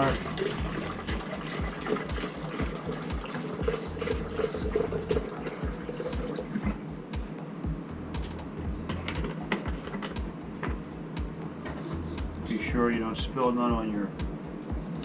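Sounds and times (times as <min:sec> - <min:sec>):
liquid pouring into bucket: 0:00.0 - 0:06.7.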